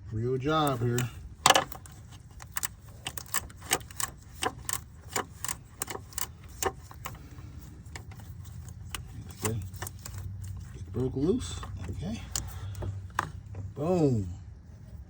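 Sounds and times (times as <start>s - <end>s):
hand tools clicking on metal: 0.6s - 10.6s.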